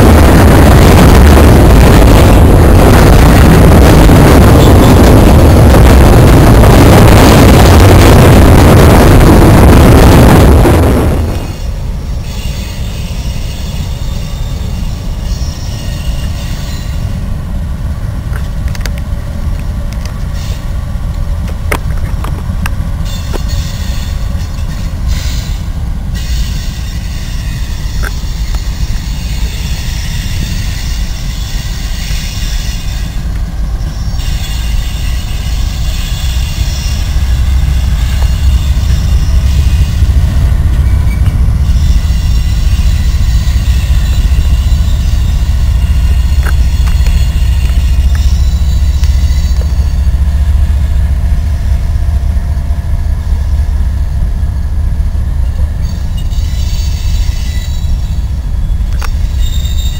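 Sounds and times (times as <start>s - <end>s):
freight train rumbling by: 0.0s - 59.9s
sharp clicks from rail cars: 11.3s - 59.9s
high wheel squeal: 11.4s - 17.3s, 20.3s - 20.7s, 23.0s - 50.2s, 55.7s - 59.9s.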